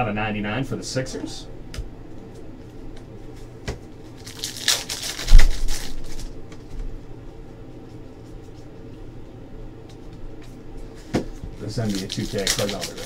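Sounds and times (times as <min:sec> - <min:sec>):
foil wrapper crinkling: 0:04.1 - 0:06.4, 0:11.6 - 0:13.0.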